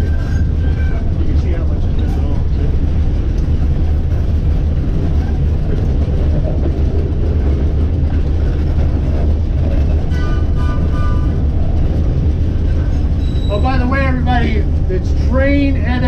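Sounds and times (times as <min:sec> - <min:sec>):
high-pitched wheel squeal: 0:00.0 - 0:01.1, 0:13.1 - 0:14.0
streetcar rumbling on track: 0:00.0 - 0:16.0.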